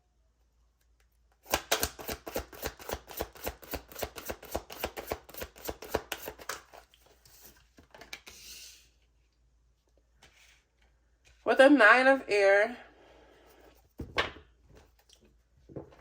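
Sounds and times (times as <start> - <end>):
cards being shuffled by hand: 1.4 - 8.6.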